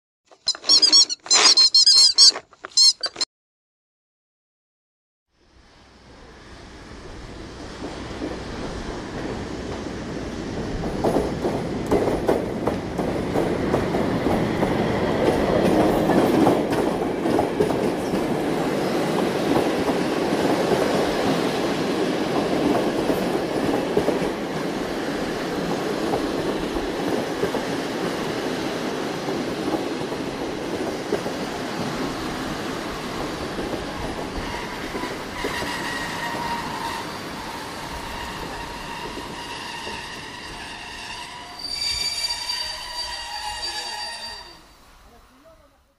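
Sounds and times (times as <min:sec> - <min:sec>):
train wheels rumbling and clattering: 0:07.1 - 0:41.5.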